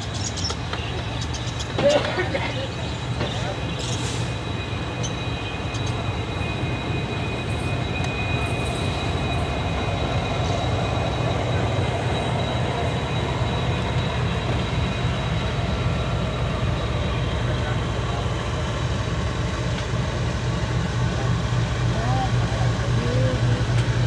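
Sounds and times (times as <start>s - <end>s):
train wheels rumbling on track: 0.0s - 24.0s
thin high whine: 1.6s - 24.0s.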